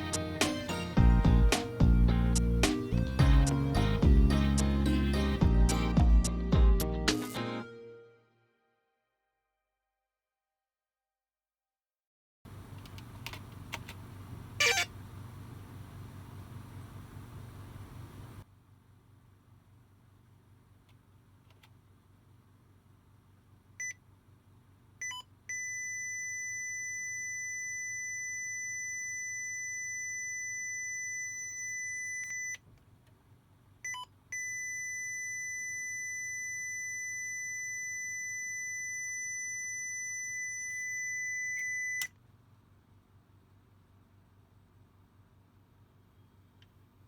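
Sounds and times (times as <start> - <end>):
computer beeper tones: 14.6 - 14.9.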